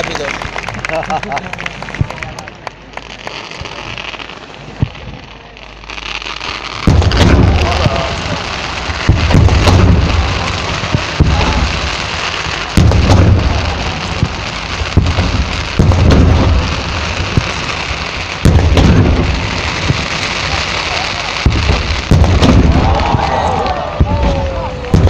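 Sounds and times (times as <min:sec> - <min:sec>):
firework crackle: 0:00.0 - 0:25.0
firework booms: 0:04.6 - 0:25.0.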